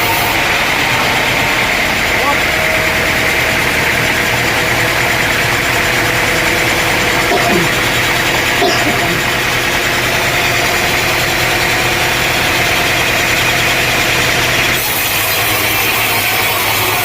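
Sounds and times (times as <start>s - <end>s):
engine running at low revs: 0.0s - 16.0s.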